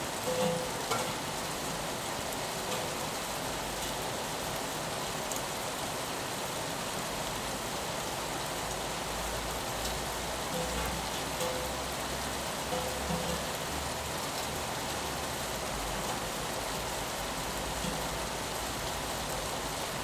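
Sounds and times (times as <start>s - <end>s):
rain on a window: 0.0s - 20.0s
raindrop ticks: 0.2s - 4.0s, 9.5s - 15.0s, 17.6s - 19.5s.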